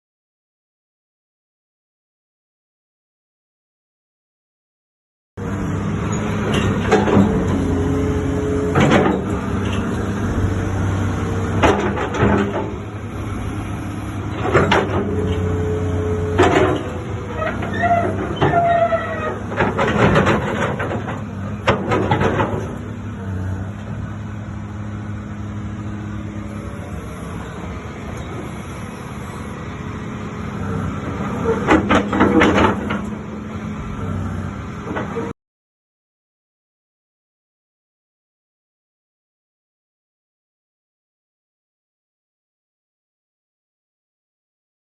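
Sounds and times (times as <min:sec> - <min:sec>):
excavator diesel engine hum: 0:05.4 - 0:35.4
knocks and clanks: 0:06.5 - 0:07.6, 0:08.7 - 0:09.9, 0:11.5 - 0:12.8, 0:14.3 - 0:15.5, 0:16.3 - 0:22.8, 0:31.2 - 0:33.2.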